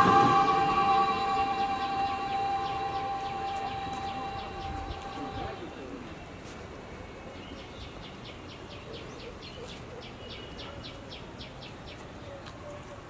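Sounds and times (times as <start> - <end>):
bird chirping: 0.0 - 6.3.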